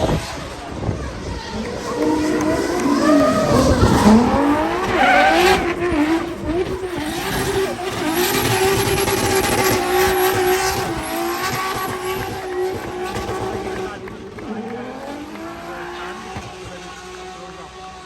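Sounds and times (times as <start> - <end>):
racing car engine revving: 0.0 - 18.0.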